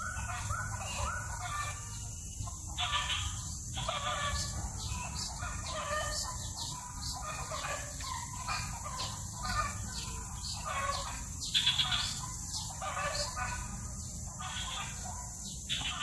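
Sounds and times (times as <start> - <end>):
birds calling: 0.0 - 16.0.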